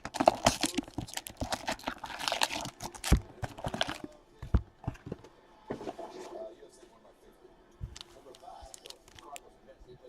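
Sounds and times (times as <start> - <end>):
card pack wrappers crinkling: 0.0 - 4.2, 7.8 - 9.4.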